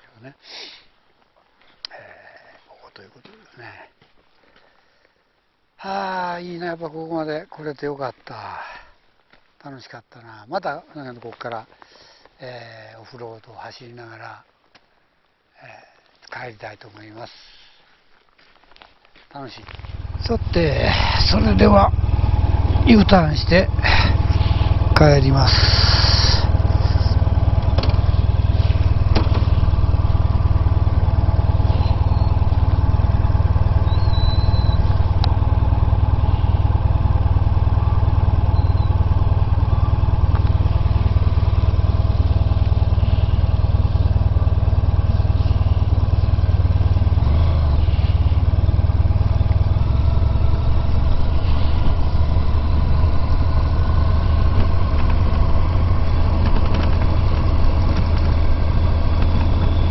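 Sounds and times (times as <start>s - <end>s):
motorcycle engine running: 19.6s - 59.9s.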